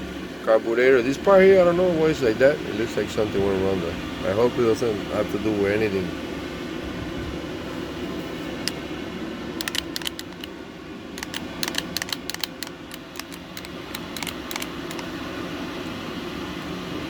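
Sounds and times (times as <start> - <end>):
steady background hum: 0.0 - 17.0
light clicks handling metal parts: 9.6 - 10.5, 11.2 - 15.2.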